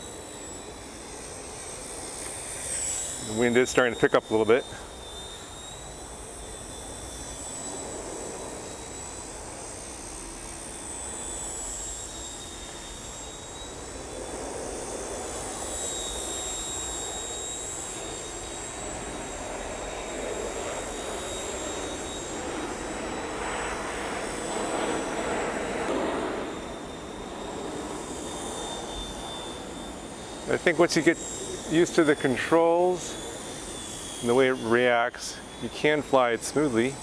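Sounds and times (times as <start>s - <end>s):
rc helicopter motor whine: 0.0s - 37.0s.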